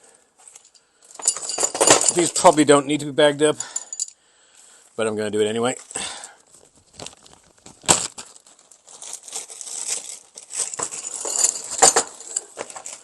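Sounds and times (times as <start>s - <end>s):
plastic bag crinkling: 5.8s - 13.0s.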